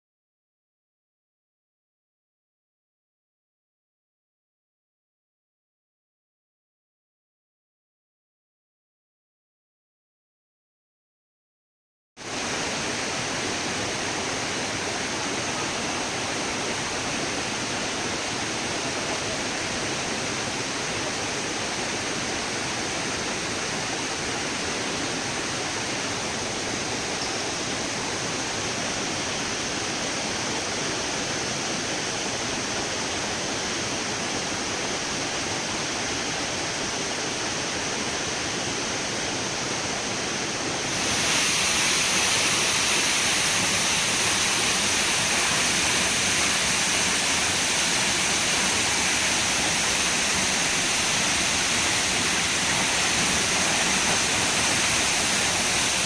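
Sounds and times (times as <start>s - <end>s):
rushing falling water: 12.2s - 56.0s.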